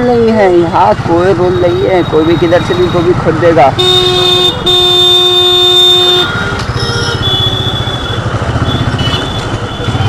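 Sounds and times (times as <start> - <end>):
vehicle horn: 3.8 - 10.0
motorcycle engine running: 6.7 - 10.0.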